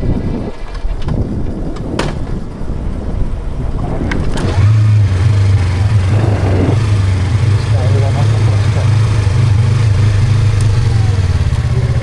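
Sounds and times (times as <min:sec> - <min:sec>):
rolling tyre noise: 0:00.0 - 0:12.0
wind noise: 0:00.0 - 0:12.0
sharp clunks: 0:01.8 - 0:02.4
motorcycle engine running: 0:03.7 - 0:12.0.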